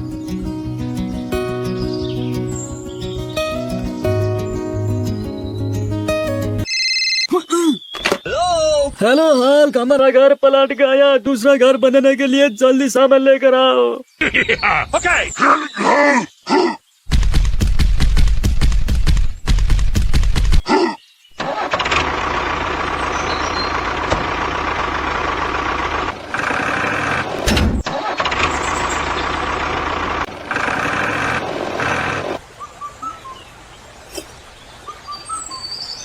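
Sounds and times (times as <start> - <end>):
vehicle engine starting and running: 21.4 - 32.4.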